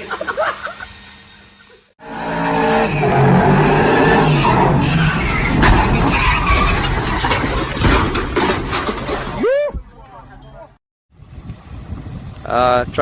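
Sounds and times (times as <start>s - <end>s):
truck engine roaring: 1.0s - 13.0s.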